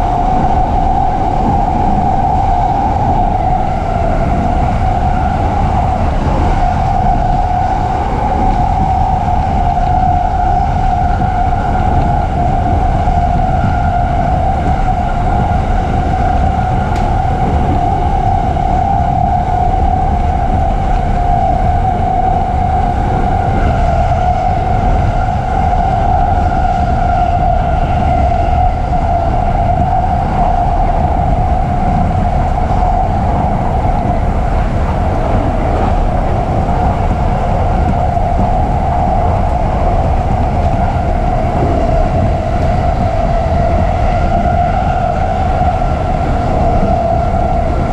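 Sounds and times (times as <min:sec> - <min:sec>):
train whine: 0:00.0 - 0:47.9
wheels rumbling on rail: 0:00.0 - 0:47.9.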